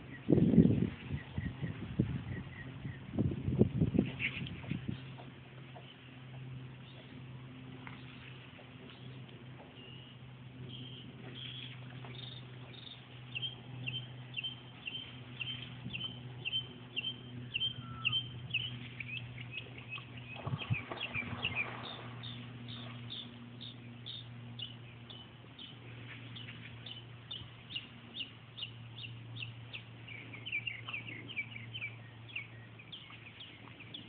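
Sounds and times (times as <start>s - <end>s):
low hum: 0.0s - 34.0s
bird chirping: 9.8s - 34.0s.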